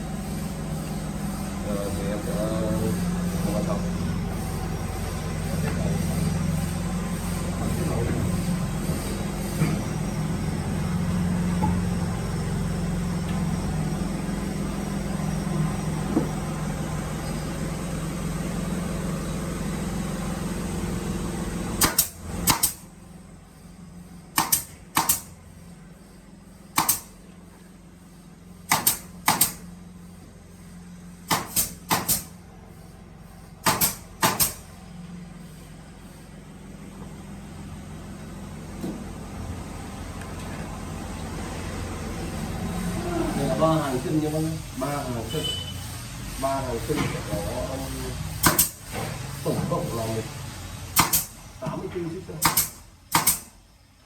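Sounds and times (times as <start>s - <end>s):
workshop machine humming: 0.0s - 54.0s
sharp wooden knocks: 33.6s - 34.6s, 52.4s - 53.5s.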